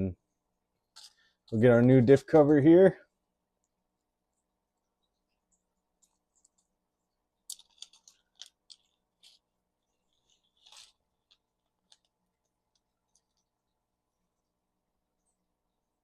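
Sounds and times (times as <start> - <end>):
clicks and taps of small parts: 7.5 - 9.4.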